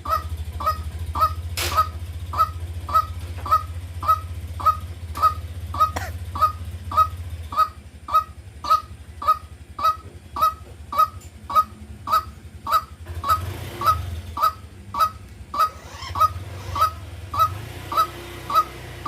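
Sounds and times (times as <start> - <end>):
steady low hum: 0.0 - 13.1
waterhen calling honking notes: 0.0 - 18.9.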